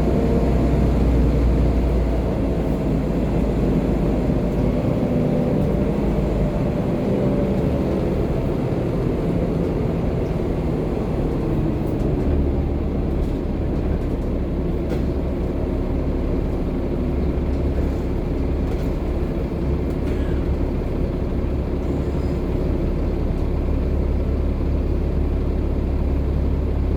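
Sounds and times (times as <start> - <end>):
bus engine droning: 0.0 - 26.9
road noise: 0.0 - 26.9.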